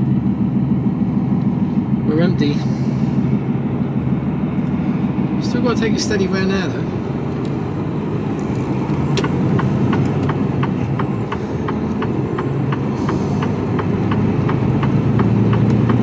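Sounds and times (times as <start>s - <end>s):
truck diesel engine running: 0.0s - 16.0s
turn signal ticking: 7.0s - 16.0s.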